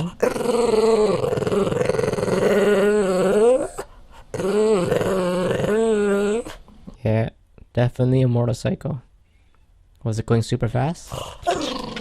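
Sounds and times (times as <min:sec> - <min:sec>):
dog growling grumble: 0:00.0 - 0:06.6, 0:11.1 - 0:12.0.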